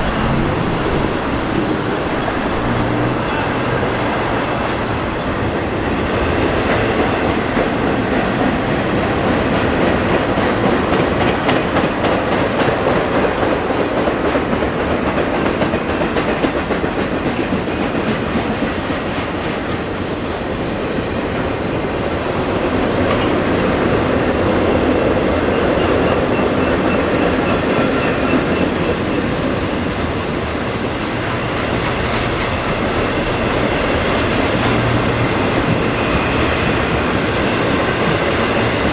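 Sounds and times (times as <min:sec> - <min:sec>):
clickety-clack over rail joints: 0:00.0 - 0:38.9
freight train wheels rumbling on rail: 0:00.0 - 0:38.9.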